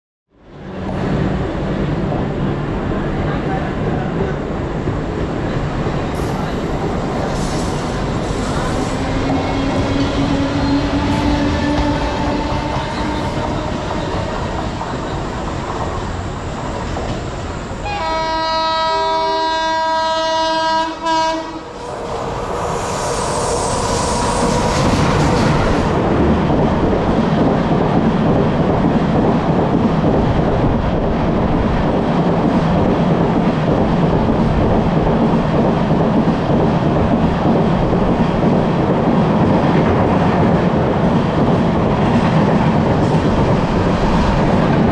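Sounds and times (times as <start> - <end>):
rush of passing train: 0.3 - 44.9
train wheels rumbling on rails: 0.6 - 44.9
multi-tone train horn: 9.2 - 14.5, 17.8 - 21.8.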